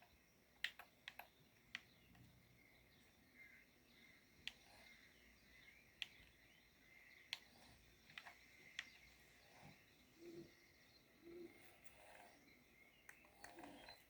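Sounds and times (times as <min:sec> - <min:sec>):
sharp soft clicks: 0:00.0 - 0:02.3, 0:04.0 - 0:06.6, 0:07.2 - 0:09.8.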